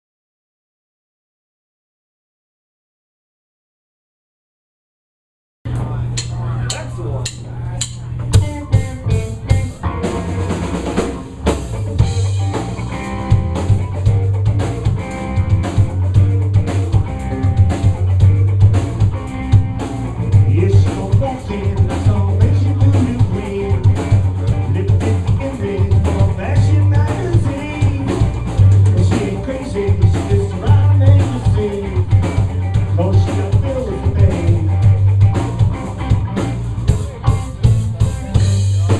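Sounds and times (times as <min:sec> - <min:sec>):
repeating bass line: 0:05.9 - 0:38.9
drum kit playing: 0:06.1 - 0:38.9.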